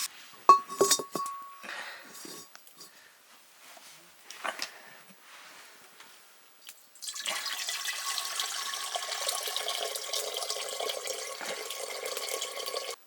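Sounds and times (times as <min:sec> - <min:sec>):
water pouring into a vessel: 0:07.0 - 0:13.0.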